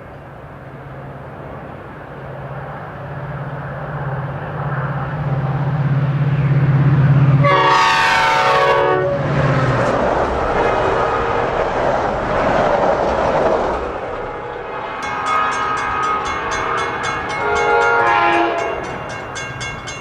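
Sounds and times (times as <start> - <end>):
diesel locomotive approaching: 0.0 - 20.0
train horn: 7.4 - 9.5, 10.4 - 11.8, 14.1 - 19.2.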